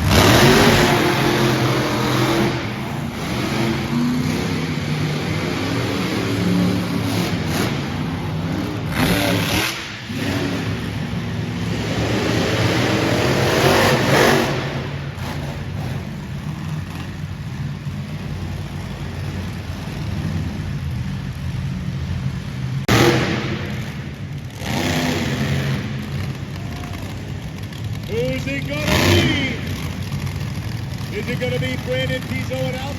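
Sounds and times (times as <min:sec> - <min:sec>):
monster truck engines revving: 0:00.0 - 0:32.9.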